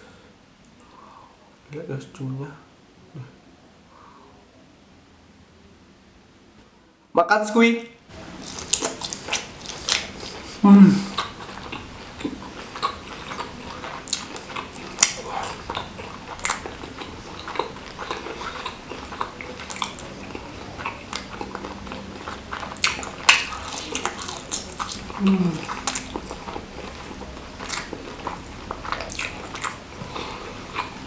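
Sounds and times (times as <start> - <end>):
wet chewing mouth sounds: 8.2 - 31.0.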